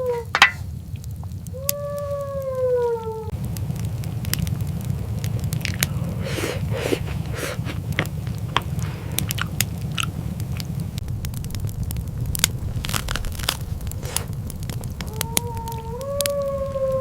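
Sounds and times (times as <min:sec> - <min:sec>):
sharp crackles and crunches: 0:00.0 - 0:17.0
low rumble: 0:07.9 - 0:16.8.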